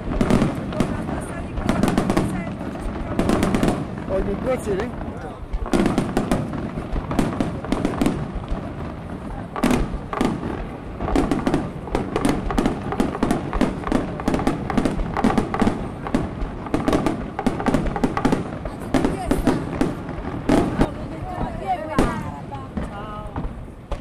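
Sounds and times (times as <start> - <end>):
fireworks bangs and cracks: 0.0 - 24.0.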